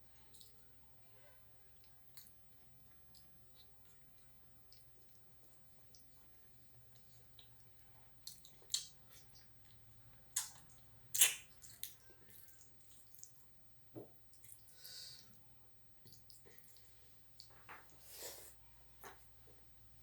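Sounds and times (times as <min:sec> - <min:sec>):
person chewing food: 0:01.8 - 0:13.4, 0:16.0 - 0:19.2
wet mouth smacks: 0:10.4 - 0:12.0.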